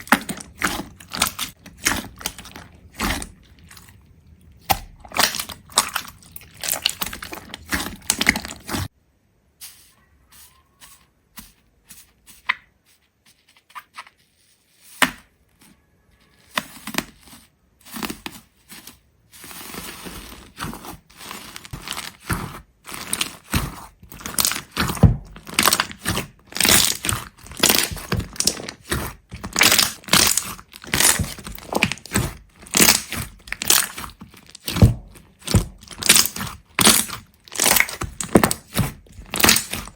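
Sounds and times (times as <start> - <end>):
sharp crunching and cracking: 0.0 - 8.9, 19.6 - 39.9.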